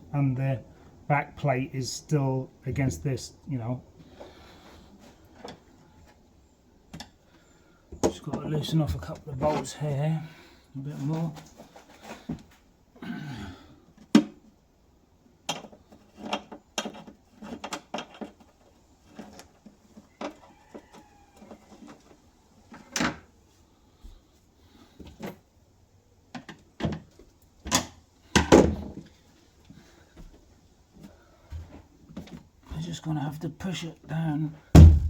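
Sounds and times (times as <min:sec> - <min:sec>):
heavy thuds: 0:34.8 - 0:35.0.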